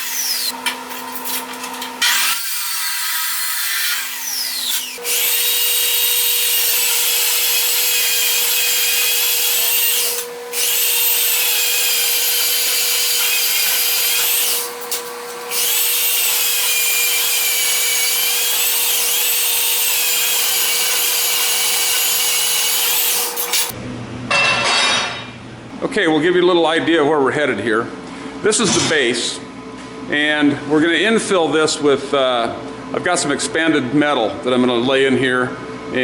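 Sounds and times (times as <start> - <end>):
power saw cutting steel: 0.0 - 23.8.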